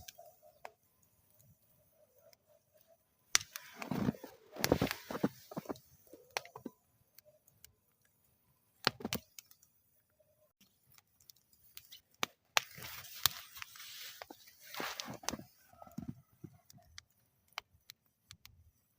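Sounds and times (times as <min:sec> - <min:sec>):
wood fire crackling and popping: 0:02.2 - 0:09.7, 0:10.6 - 0:18.9
fire hissing: 0:03.3 - 0:06.7, 0:12.6 - 0:16.4.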